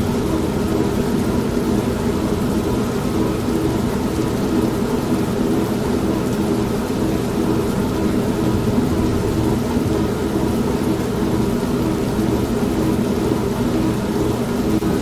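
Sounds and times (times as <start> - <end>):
washing machine humming: 0.0 - 15.0
rain hissing: 8.4 - 11.1
thunder rumbling: 8.4 - 12.1.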